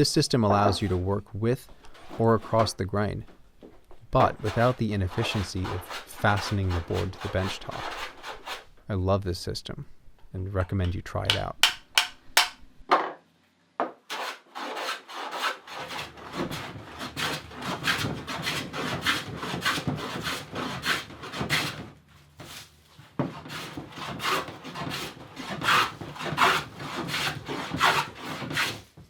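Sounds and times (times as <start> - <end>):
hand tool rasping wood: 1.8 - 2.8, 4.2 - 8.7, 11.3 - 12.6, 14.1 - 28.8.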